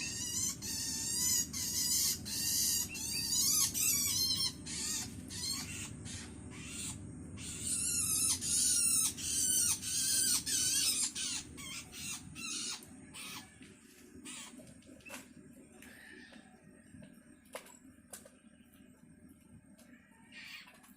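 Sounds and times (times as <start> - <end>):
bird chicks begging calls: 0.0 - 16.5.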